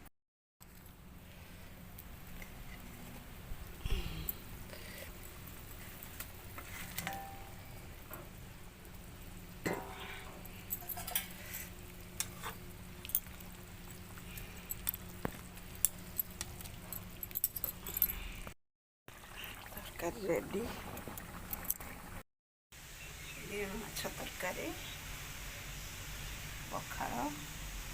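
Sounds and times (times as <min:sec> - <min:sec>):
curry simmering sizzle: 0:00.6 - 0:16.8, 0:19.1 - 0:22.2, 0:22.8 - 0:27.9
metal spoon scraping pan: 0:09.7 - 0:12.7.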